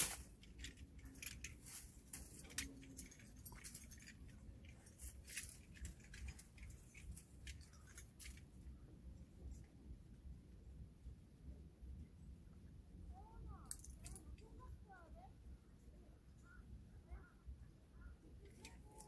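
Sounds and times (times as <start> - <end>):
metal climbing hardware clinking: 0.1 - 8.5.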